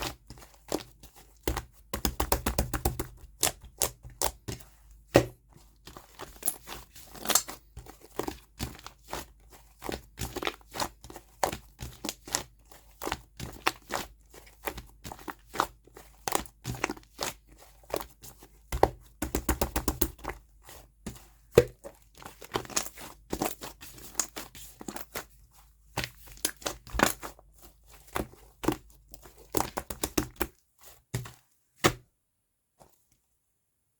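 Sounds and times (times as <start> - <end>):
slime crackling and crunching: 6.0 - 9.3, 21.6 - 30.5.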